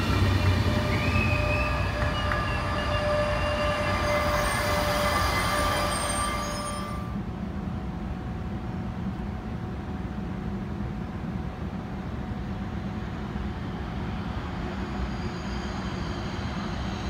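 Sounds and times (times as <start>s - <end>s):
train rumbling: 0.0s - 17.0s
high metallic squealing: 0.4s - 7.1s.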